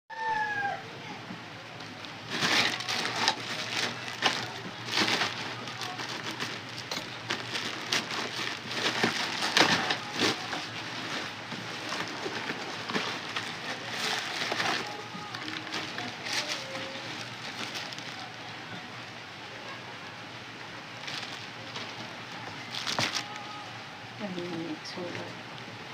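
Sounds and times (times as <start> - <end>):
packaging crackling and tearing: 1.8 - 18.9, 20.9 - 23.6.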